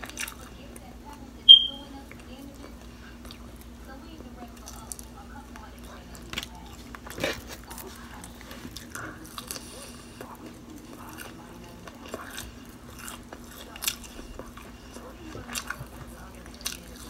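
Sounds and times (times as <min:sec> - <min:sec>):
person crunching fried shrimp: 0:06.4 - 0:17.0.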